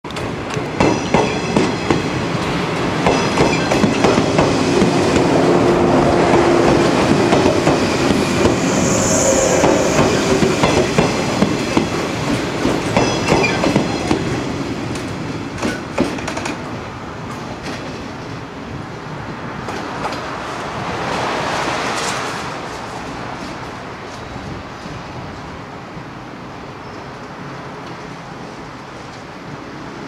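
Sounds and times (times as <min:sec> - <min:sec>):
train wheels clicking over rail joints: 0:00.1 - 0:05.3, 0:06.3 - 0:18.4
train rumble: 0:00.1 - 0:30.0
high hiss: 0:06.8 - 0:11.7.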